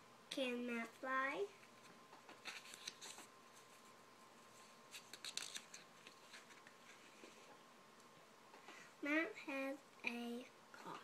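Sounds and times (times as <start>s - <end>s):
soft rustles: 1.6s - 7.6s.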